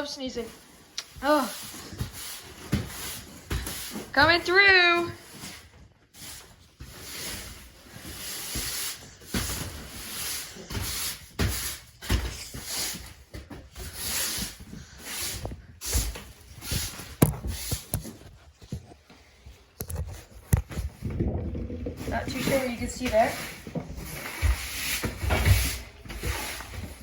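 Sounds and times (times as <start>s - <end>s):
breathing close to microphone: 12.1s - 18.4s.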